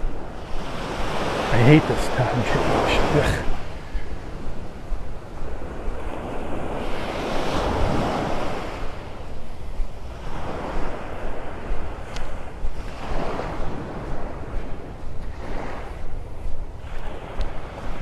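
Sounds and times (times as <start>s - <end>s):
wind rumbling on microphone: 0.0s - 18.0s
surf breaking on beach: 0.5s - 4.0s.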